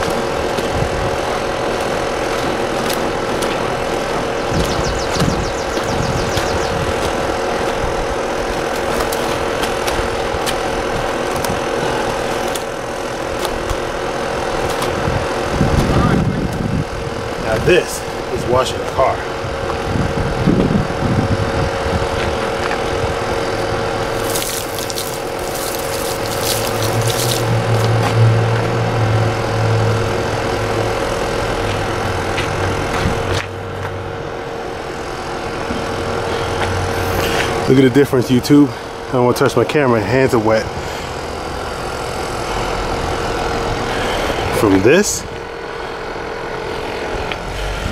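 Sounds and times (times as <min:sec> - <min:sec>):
steady motor hum: 0:00.0 - 0:47.9
water spray hissing: 0:24.0 - 0:27.8.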